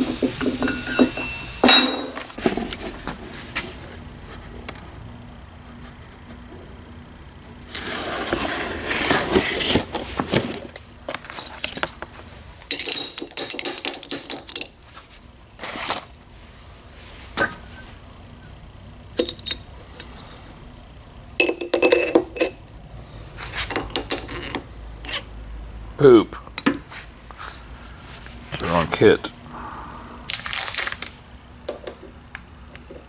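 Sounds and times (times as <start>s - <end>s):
small metal parts clinking: 11.2s - 12.0s, 12.7s - 14.8s, 19.1s - 20.6s.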